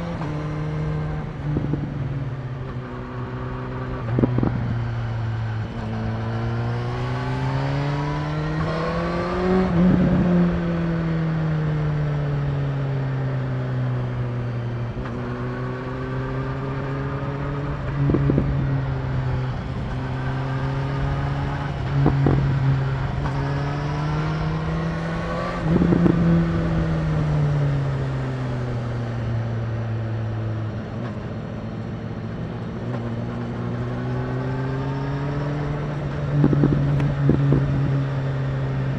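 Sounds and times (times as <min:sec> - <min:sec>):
motorcycle engine revving: 0:00.0 - 0:38.9
wind on microphone: 0:35.9 - 0:38.1.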